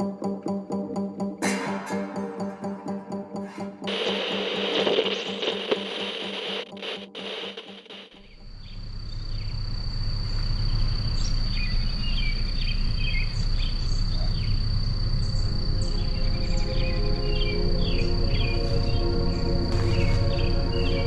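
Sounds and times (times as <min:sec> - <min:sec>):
steady tones: 0:01.6 - 0:08.3.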